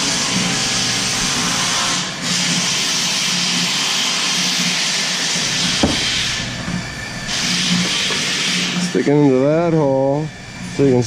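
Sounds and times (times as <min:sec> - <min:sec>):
sharp knock: 0:05.8 - 0:06.2.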